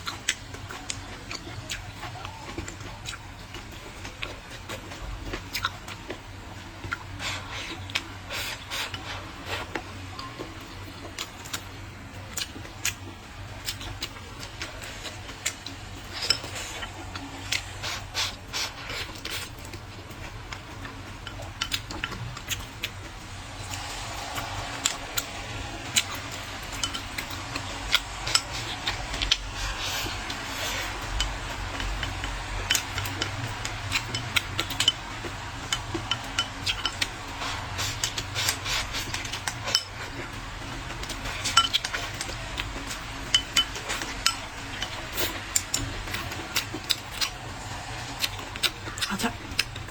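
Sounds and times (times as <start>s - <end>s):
person chewing: 0.0s - 9.8s, 12.3s - 49.9s
utensils clicking against a bowl: 12.3s - 23.0s, 23.6s - 49.9s.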